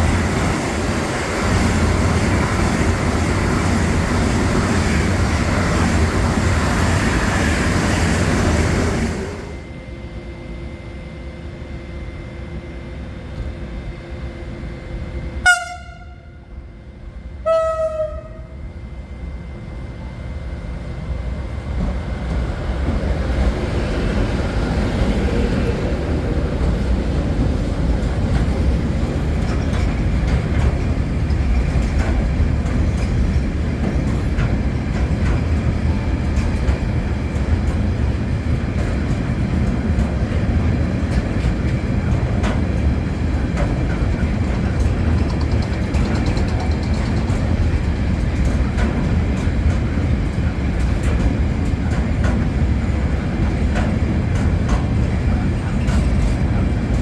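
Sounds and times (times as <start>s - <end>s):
train wheels rumbling on rails: 0.0s - 57.0s
train horn blasts: 15.4s - 16.6s, 17.4s - 18.6s.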